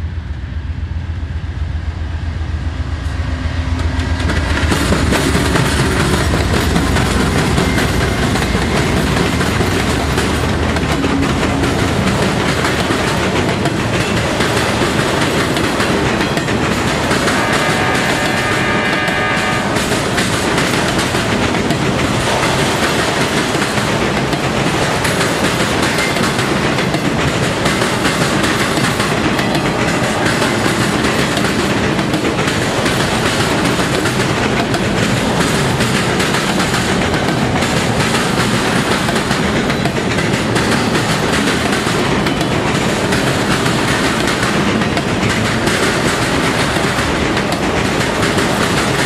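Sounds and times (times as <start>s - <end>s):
freight train wheels clattering: 3.6s - 49.0s
held horn tone: 17.2s - 19.8s.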